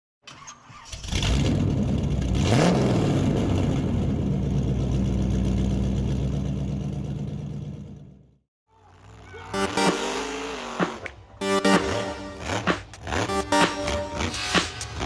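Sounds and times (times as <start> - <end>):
truck engine revving: 8.9 - 15.0.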